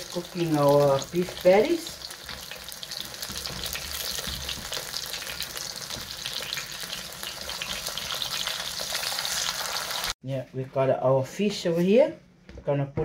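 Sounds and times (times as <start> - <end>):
meat sizzling in frying pan: 0.0 - 10.2.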